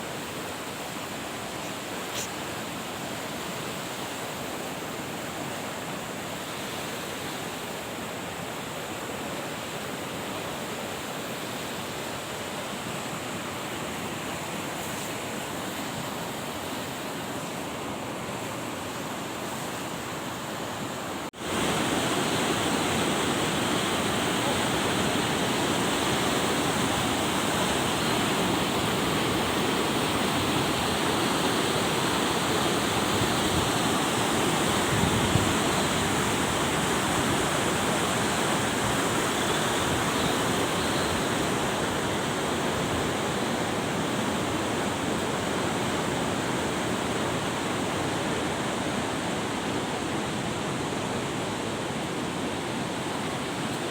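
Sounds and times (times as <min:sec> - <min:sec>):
rushing mountain water: 0:00.0 - 0:53.9.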